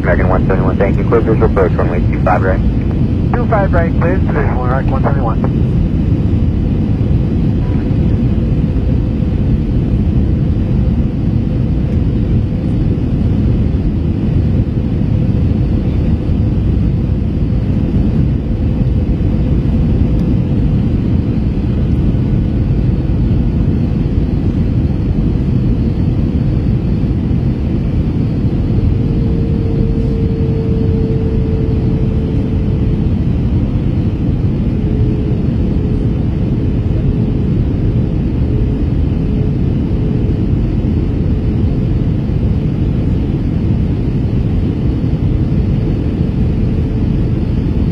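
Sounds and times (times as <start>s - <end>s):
airplane cabin rumble: 0.0s - 47.9s
faint hum: 0.0s - 47.9s.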